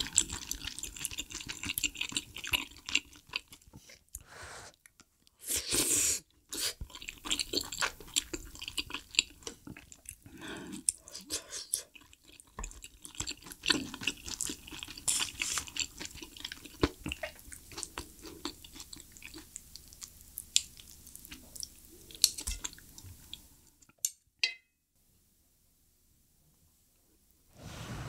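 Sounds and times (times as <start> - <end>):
close chewing with wet mouth smacks: 0.0 - 3.8, 6.5 - 11.0, 11.8 - 23.4.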